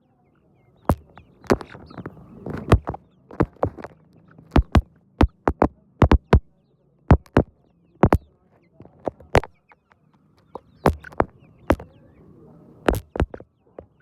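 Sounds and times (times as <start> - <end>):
sharp taps: 0.9 - 6.5, 7.1 - 9.6, 10.4 - 11.9, 12.9 - 14.0.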